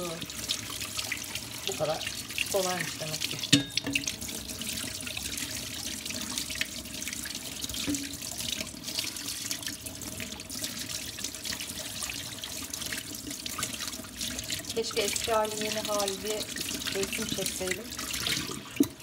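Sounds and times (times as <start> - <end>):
water splashing over metal tray: 0.0 - 19.0
tap running into sink: 3.3 - 4.2, 18.2 - 19.0.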